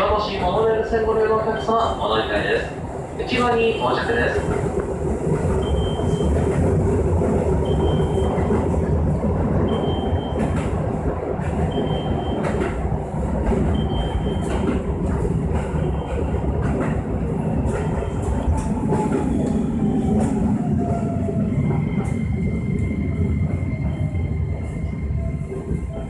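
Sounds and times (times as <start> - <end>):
train wheels rumbling: 0.0 - 26.0
faint high beep: 5.6 - 6.4, 7.6 - 8.5, 9.7 - 10.5, 11.7 - 12.5, 13.8 - 14.6
rail-joint clacks: 9.6 - 22.2.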